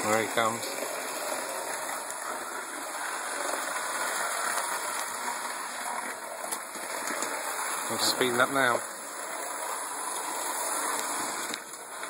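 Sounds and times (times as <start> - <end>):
model train whirring: 0.0 - 12.0
faint clicks of track: 10.2 - 12.0.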